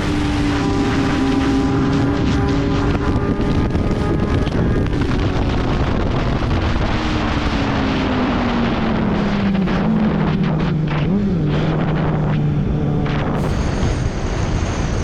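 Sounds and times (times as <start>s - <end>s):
motorcycle engine slowing: 0.0s - 5.4s
wind buffeting microphone: 0.0s - 15.0s.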